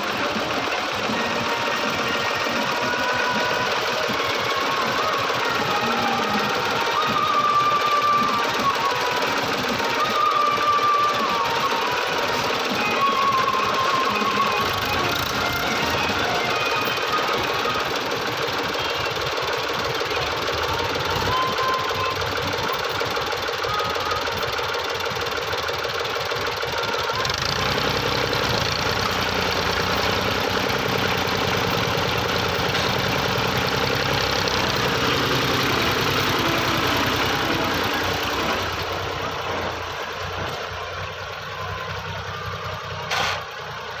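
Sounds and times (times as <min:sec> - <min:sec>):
tractor engine knocking: 0:00.0 - 0:44.0.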